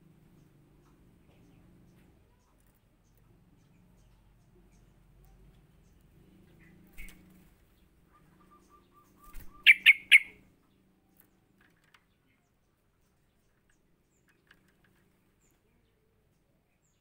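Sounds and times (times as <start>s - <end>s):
bulbul calling: 8.1s - 10.4s.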